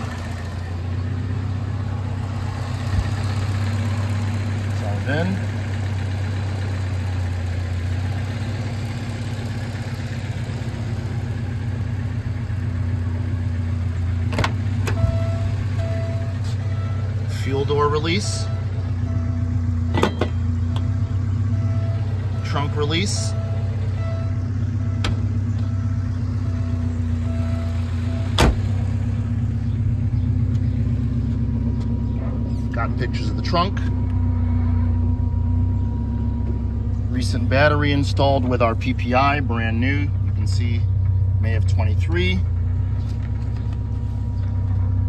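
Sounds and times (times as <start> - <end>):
car engine idling: 0.0 - 45.0
sharp thunk: 19.9 - 20.4, 28.4 - 28.8.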